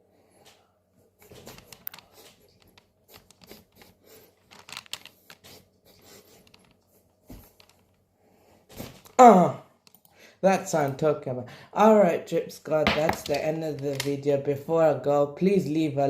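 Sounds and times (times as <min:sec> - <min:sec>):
small clicks and rustles: 0:00.4 - 0:08.1.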